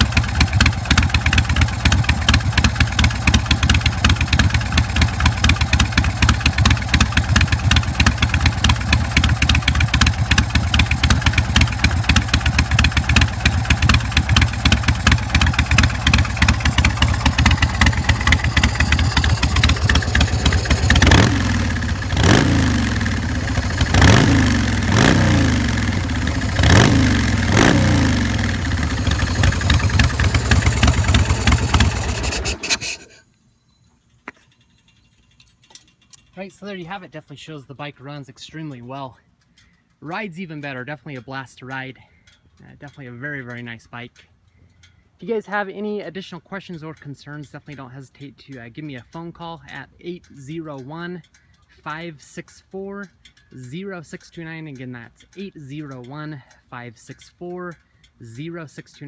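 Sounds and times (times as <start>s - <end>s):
motorcycle engine idling: 0.0s - 33.2s
motorcycle throttle revving: 0.0s - 33.2s.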